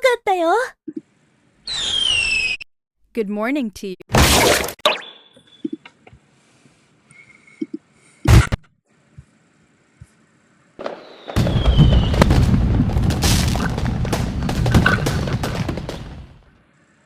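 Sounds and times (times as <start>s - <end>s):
falling whistle: 1.6s - 2.7s, 10.9s - 12.2s
booms and crackling: 10.8s - 16.6s
loud explosion bang: 11.3s - 16.4s.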